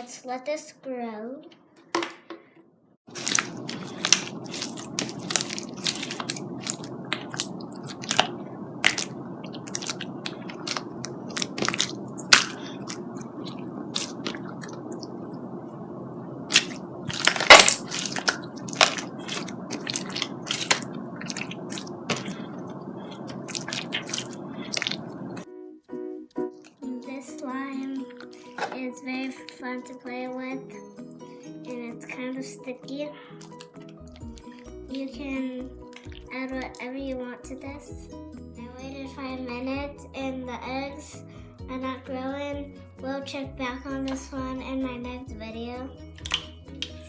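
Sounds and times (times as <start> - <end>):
slime popping and crackling: 3.1 - 15.2, 16.5 - 25.4, 36.0 - 36.3, 46.2 - 47.0
slime squeezed by hand: 3.1 - 15.2, 16.5 - 25.4.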